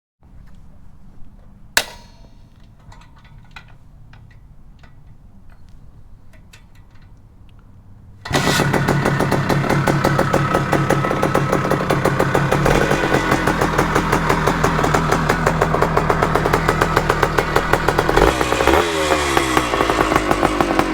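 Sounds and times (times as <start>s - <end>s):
sharp bang: 1.8s - 2.6s
two-stroke motorcycle engine running: 8.3s - 20.9s.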